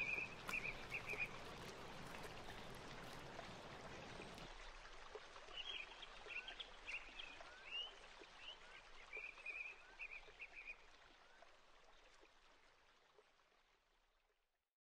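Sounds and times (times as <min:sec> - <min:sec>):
small birds chirping: 0:00.0 - 0:04.5.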